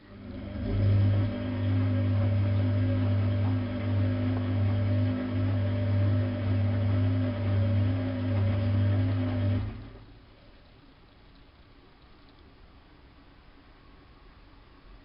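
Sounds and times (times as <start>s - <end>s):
washing machine motor humming: 0.0s - 10.4s.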